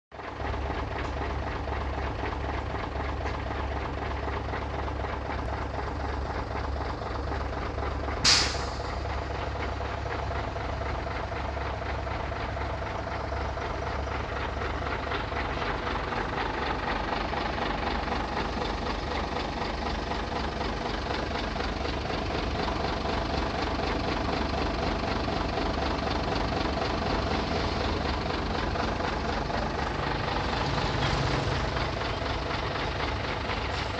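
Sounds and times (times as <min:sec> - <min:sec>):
truck engine running: 0:00.1 - 0:33.9
sharp hiss or crack: 0:08.2 - 0:08.9.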